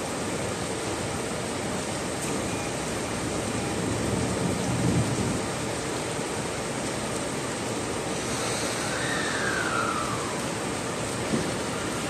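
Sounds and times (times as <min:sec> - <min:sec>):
heavy rain hissing: 0:00.0 - 0:12.0
faint falling whine: 0:08.4 - 0:12.0.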